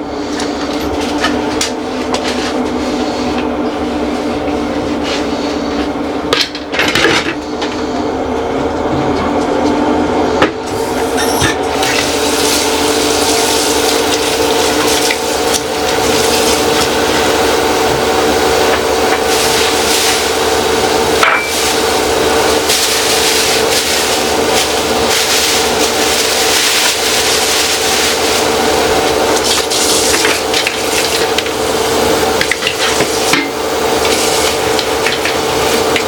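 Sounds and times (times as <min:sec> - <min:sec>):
water running from tap into sink: 0:11.7 - 0:36.0.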